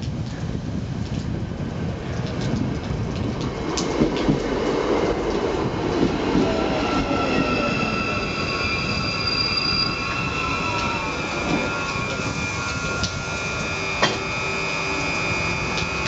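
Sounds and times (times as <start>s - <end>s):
wheel-on-rail rumble: 0.0s - 16.0s
high whining inverter tones: 6.4s - 16.0s
gliding motor tones: 6.6s - 16.0s.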